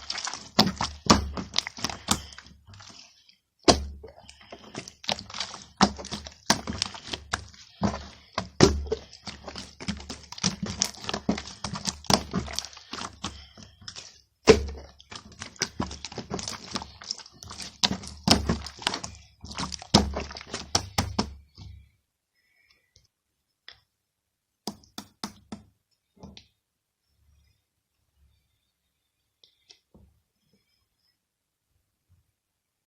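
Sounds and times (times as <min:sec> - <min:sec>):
dull thuds: 0:03.7 - 0:13.5, 0:14.5 - 0:21.9.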